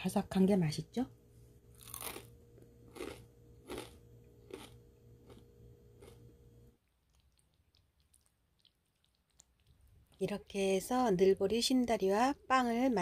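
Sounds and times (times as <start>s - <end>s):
faint steady hum: 0.0s - 13.0s
crunchy chewing: 1.7s - 10.5s.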